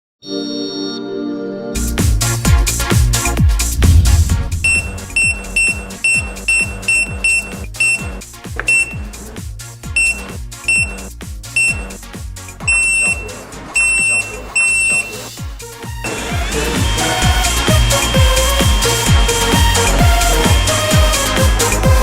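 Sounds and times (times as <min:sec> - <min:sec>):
high alarm-like beeps: 0:04.6 - 0:09.1, 0:10.0 - 0:12.0, 0:12.6 - 0:15.3
electronic music with kick drum: 0:04.6 - 0:16.0.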